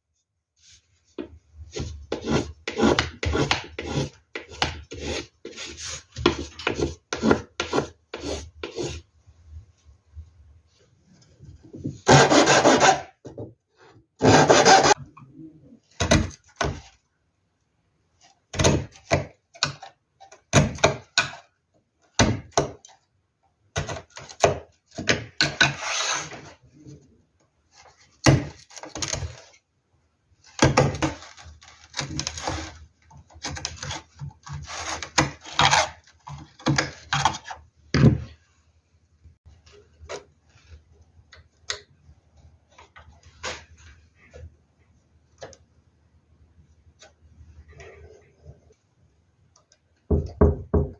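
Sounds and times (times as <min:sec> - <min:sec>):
hand tool working wood: 0:01.7 - 0:09.0, 0:11.8 - 0:13.2, 0:14.2 - 0:15.0.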